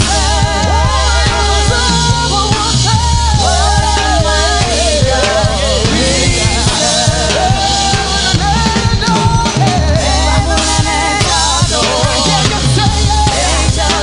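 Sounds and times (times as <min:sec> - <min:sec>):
gospel band playing: 0:00.0 - 0:14.0
person singing melismatically: 0:00.0 - 0:14.0.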